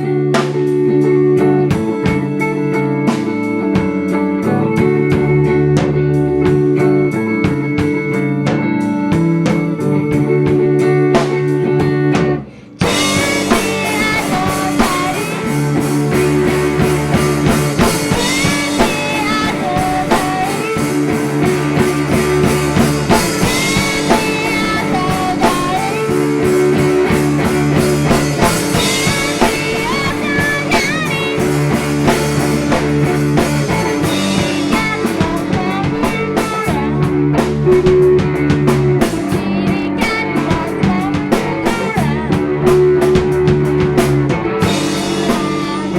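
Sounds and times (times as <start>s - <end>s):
woman singing: 0.0s - 7.8s, 11.3s - 43.5s, 44.6s - 45.9s
drum kit: 0.0s - 45.9s
guitar: 0.0s - 45.9s.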